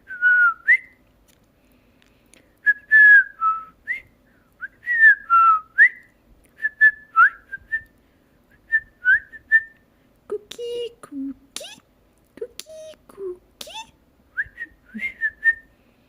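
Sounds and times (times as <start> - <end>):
person whistling a tune: 2.6 - 7.9, 8.5 - 9.8, 14.4 - 15.7.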